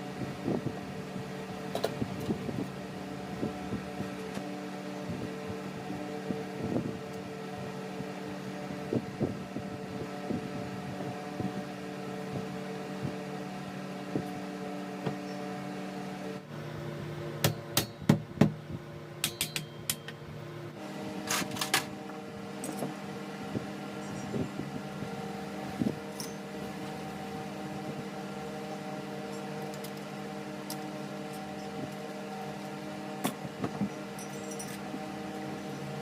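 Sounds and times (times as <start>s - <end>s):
table fan humming: 0.0s - 36.0s
metal tools clicking and knocking: 19.2s - 20.2s, 34.2s - 34.8s.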